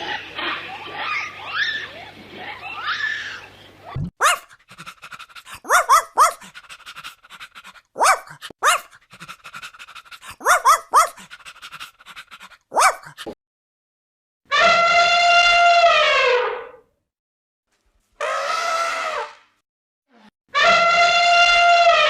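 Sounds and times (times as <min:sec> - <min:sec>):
small dog yapping: 0:03.9 - 0:04.6, 0:05.5 - 0:06.6, 0:08.0 - 0:09.0, 0:10.2 - 0:11.3, 0:12.7 - 0:13.4.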